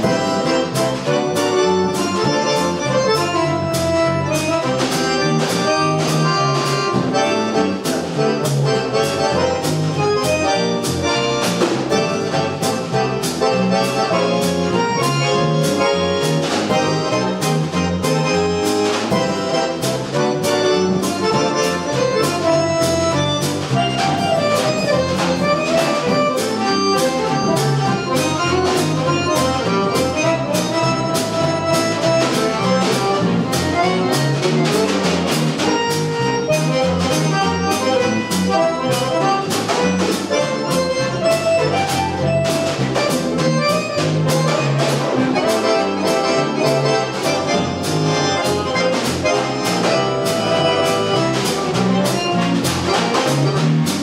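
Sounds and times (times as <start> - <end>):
bass guitar: 0.0 - 54.0
drum kit with cymbals: 0.0 - 54.0
jazz accordion melody: 0.0 - 54.0.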